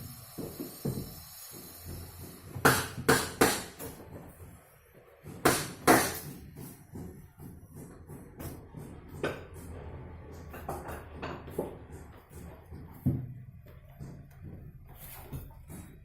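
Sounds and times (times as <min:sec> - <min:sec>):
sharp knocks: 0:05.4 - 0:07.2.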